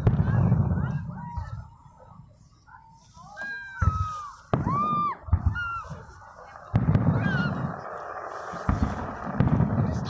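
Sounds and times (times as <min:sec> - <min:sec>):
fireworks exploding: 0:00.0 - 0:10.0
short high cries: 0:03.2 - 0:06.1
rumbling echo: 0:06.5 - 0:10.0.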